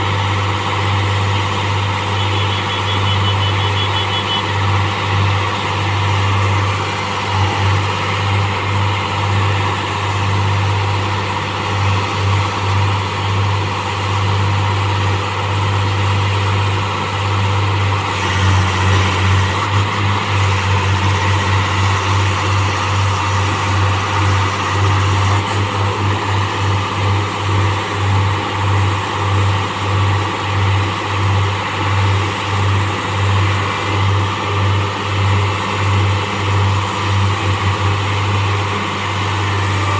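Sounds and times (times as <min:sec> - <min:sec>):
heavy machine engine running: 0:00.0 - 0:39.9.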